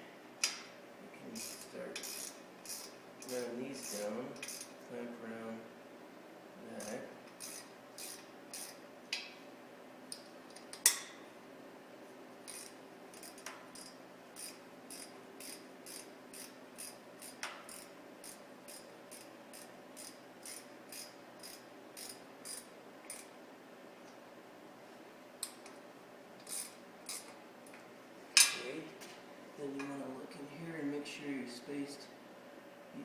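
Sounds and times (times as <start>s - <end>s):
ratchet wrench clicking: 1.4s - 4.7s, 6.8s - 8.8s, 12.5s - 23.3s.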